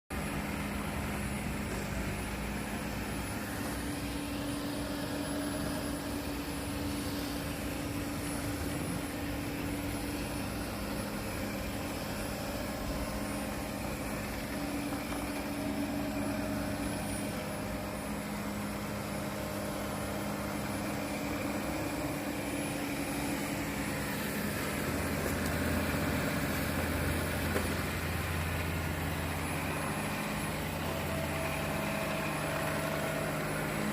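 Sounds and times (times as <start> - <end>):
robot vacuum running: 0.2 - 33.9.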